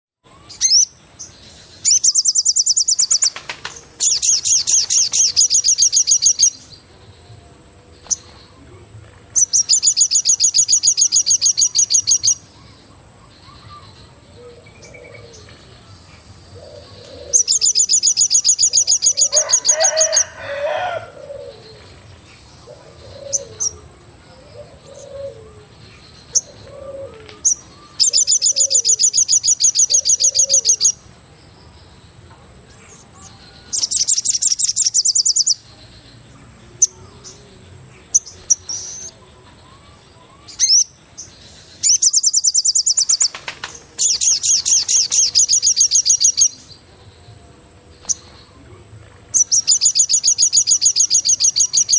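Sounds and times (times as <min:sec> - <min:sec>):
steady high-pitched whine: 0:00.2 - 0:51.9
bird rapid high trill: 0:01.8 - 0:06.7, 0:41.8 - 0:46.6.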